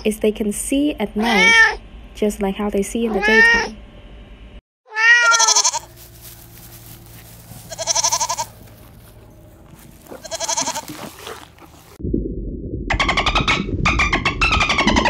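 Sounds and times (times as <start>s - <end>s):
young goat bleating: 4.9s - 12.0s.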